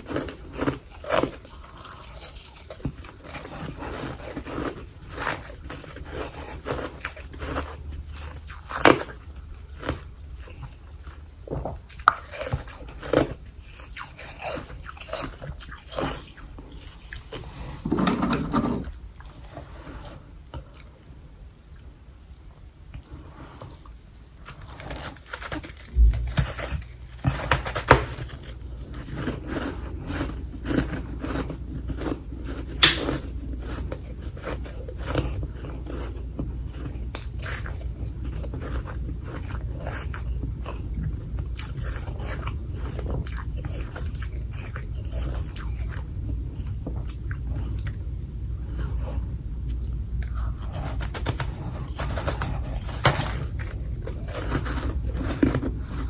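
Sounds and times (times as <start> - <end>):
chewing crunchy ice: 0.0 - 17.8, 24.4 - 56.0
steady low rumble: 25.8 - 27.3.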